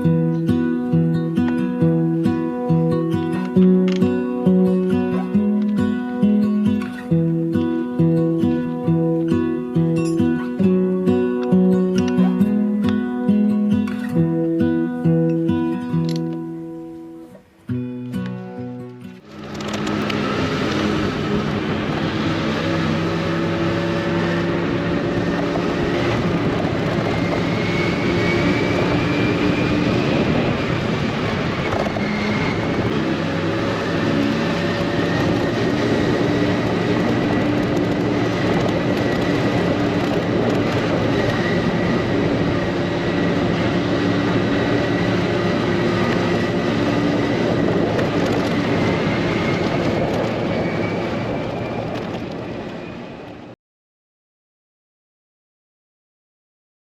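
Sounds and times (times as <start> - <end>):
wind noise: 19.0 - 53.6
scooter engine running: 19.2 - 51.3.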